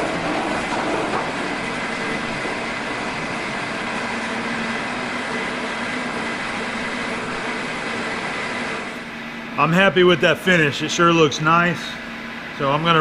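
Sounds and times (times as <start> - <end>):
metal shaper cutting aluminum: 0.0 - 9.0.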